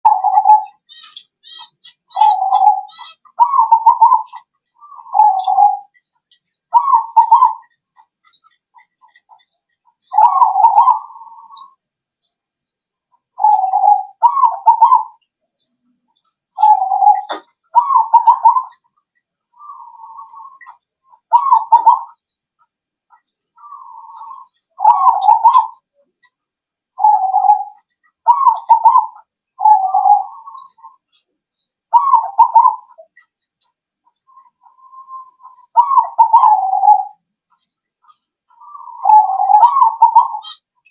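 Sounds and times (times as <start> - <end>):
dove cooing: 0.0 - 6.0, 6.7 - 7.8, 8.8 - 11.8, 13.4 - 15.2, 16.6 - 18.9, 19.6 - 22.2, 23.6 - 26.0, 27.0 - 31.2, 31.9 - 33.2, 34.3 - 37.2, 38.1 - 40.6
small bird chirping: 0.0 - 40.9.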